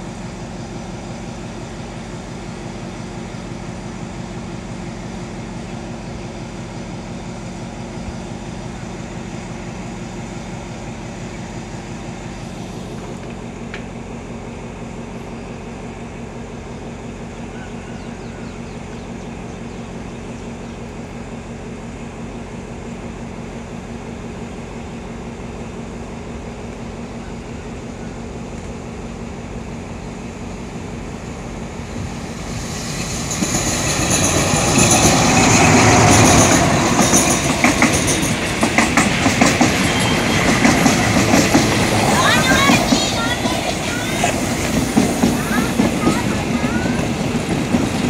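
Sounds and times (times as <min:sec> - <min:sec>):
locomotive engine noise: 0:00.0 - 0:48.0
wheels clacking over rail joints: 0:33.1 - 0:48.0.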